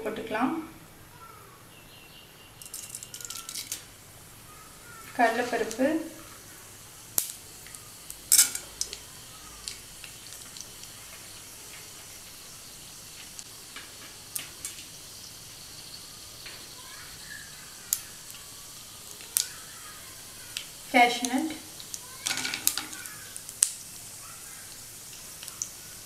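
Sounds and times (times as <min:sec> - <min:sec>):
seeds sizzling in hot ghee: 0:00.0 - 0:26.0
mustard seeds popping: 0:02.6 - 0:26.0.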